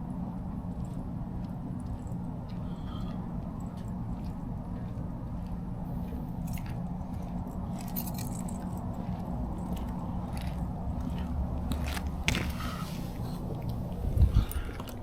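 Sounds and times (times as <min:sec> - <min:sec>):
diesel engine drone: 0:00.0 - 0:15.0
road noise inside cab: 0:00.0 - 0:15.0.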